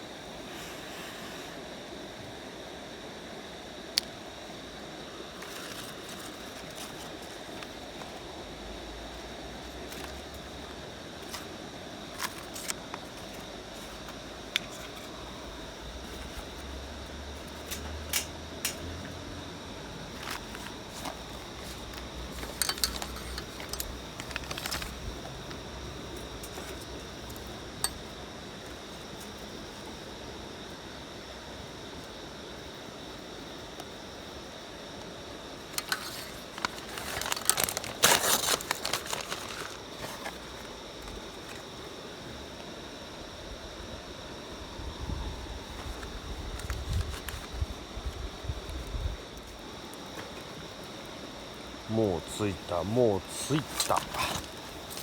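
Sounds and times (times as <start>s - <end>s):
paper and kindling crinkling: 5.3s - 19.2s, 19.9s - 30.0s, 35.6s - 41.9s, 45.3s - 51.1s, 51.9s - 55.0s
small hard objects clinking: 20.2s - 25.0s, 35.8s - 39.8s.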